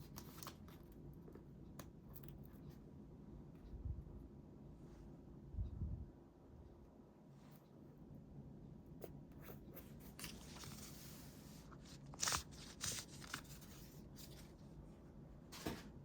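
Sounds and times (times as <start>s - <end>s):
paper rustling: 9.8s - 14.6s.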